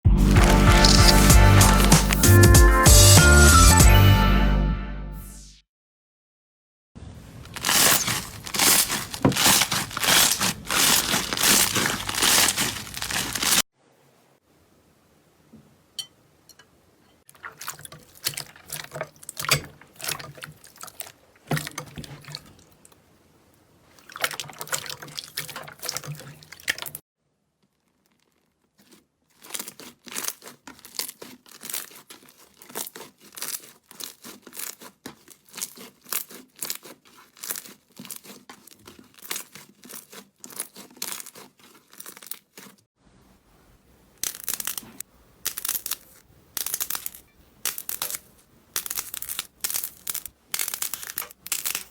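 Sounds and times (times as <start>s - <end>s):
slime squished by hand: 0.3s - 2.4s, 7.4s - 13.6s, 27.8s - 42.8s, 44.2s - 51.9s.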